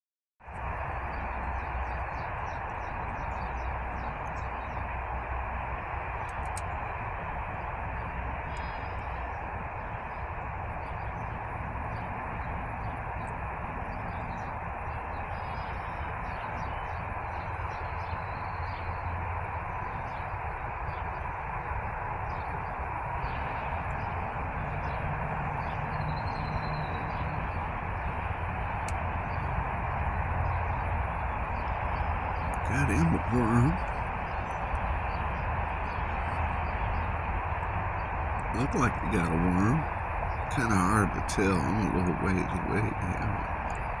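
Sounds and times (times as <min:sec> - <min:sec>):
faint bird chirps: 0:00.6 - 0:29.5, 0:30.2 - 0:44.0
rumbling hissing background noise: 0:00.6 - 0:44.0.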